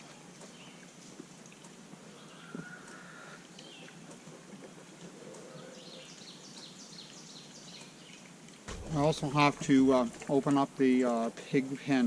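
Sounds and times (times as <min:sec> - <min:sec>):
outdoor background hiss: 0:00.0 - 0:12.0
small knock: 0:08.7 - 0:10.4.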